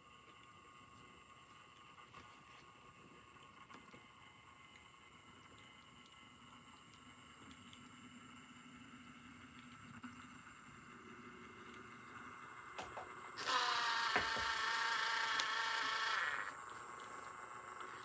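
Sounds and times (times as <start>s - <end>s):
model train whirring and buzzing: 7.1s - 18.0s.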